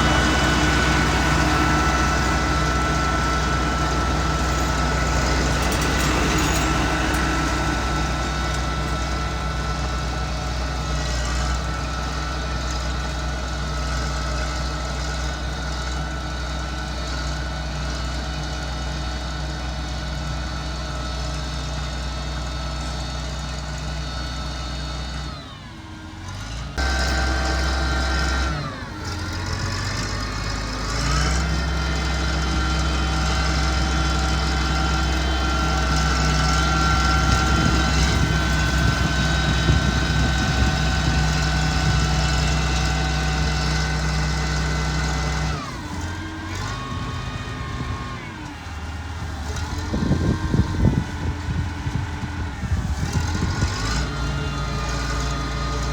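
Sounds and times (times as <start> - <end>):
diesel engine revving: 0.0 - 55.9.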